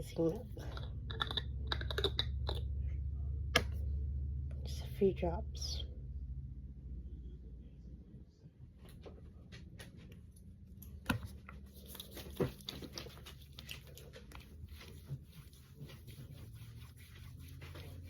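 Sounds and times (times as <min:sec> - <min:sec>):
fingertips patting skin: 0:11.1 - 0:18.0.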